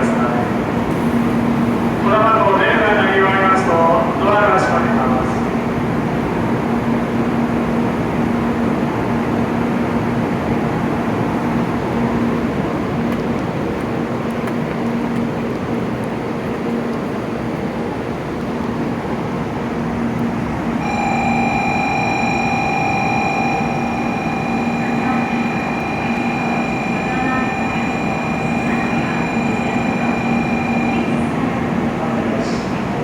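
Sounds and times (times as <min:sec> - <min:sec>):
train low hum: 0:00.0 - 0:33.0
electronic departure tone: 0:20.8 - 0:32.2.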